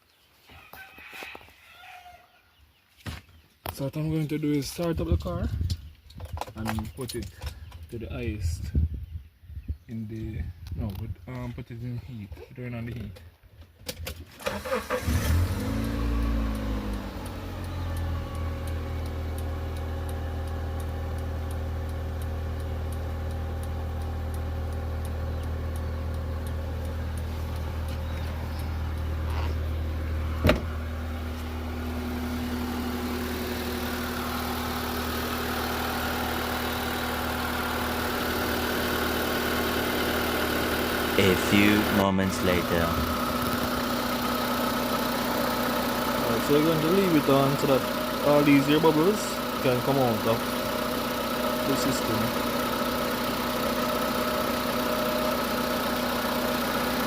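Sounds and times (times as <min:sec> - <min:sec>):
car engine idling: 0:14.4 - 0:57.0.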